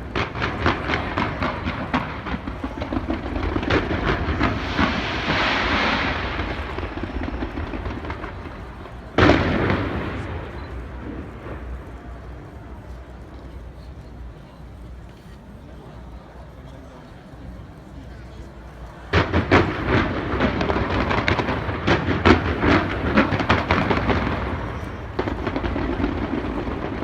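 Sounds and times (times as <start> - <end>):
fireworks bangs: 0.0 - 12.5, 19.1 - 27.0
fireworks crackling: 0.0 - 14.9, 18.5 - 27.0.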